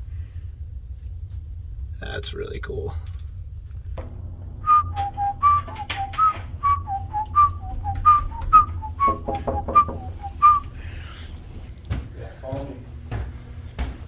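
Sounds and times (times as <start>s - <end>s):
steady low hum: 0.0s - 14.0s
person whistling a tune: 4.6s - 10.8s.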